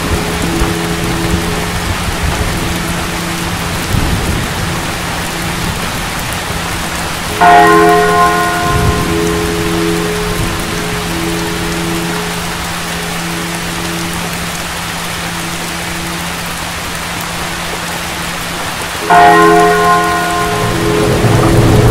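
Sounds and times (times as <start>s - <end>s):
low thunder rumbles: 0.0s - 12.6s, 19.3s - 21.9s
low droning notes: 0.0s - 21.9s
steady rain: 0.0s - 21.9s.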